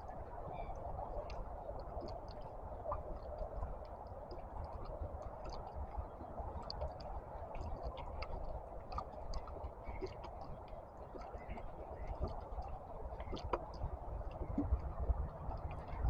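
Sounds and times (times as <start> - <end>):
small clicks and ticks: 1.1 - 16.0.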